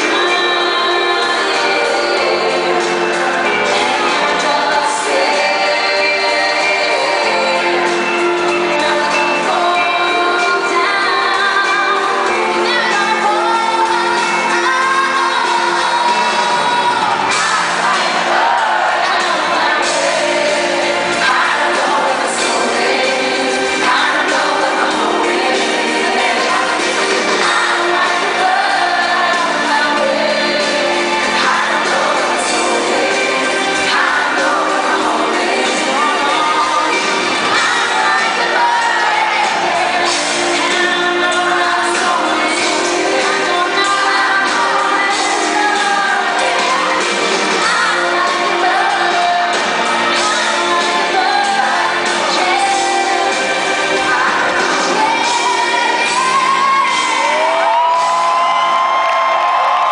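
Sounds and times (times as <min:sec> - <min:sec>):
live band playing: 0:00.0 - 0:59.9
person singing: 0:00.0 - 0:59.9
crowd shouting and whooping: 0:12.6 - 0:59.9
crowd shouting: 0:16.0 - 0:22.8, 0:55.3 - 0:59.9.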